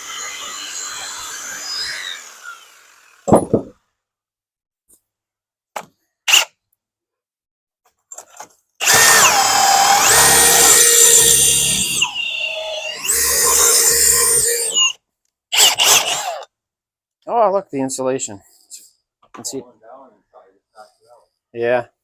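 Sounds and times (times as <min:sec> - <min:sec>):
power drill boring into wood: 0:00.0 - 0:03.7, 0:08.8 - 0:16.5
handling knocks: 0:03.3 - 0:03.8.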